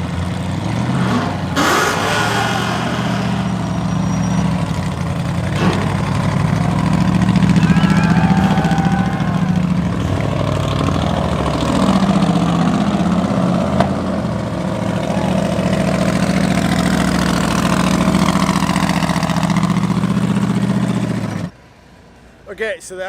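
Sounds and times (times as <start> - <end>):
race car engine idling: 3.6 - 21.5.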